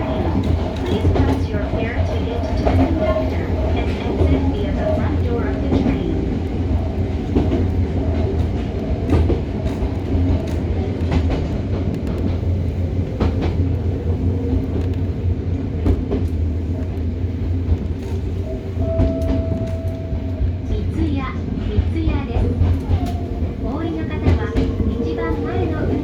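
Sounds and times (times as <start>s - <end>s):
rail joint clicks: 0.0s - 26.0s
train wheels rumbling on track: 0.0s - 26.0s.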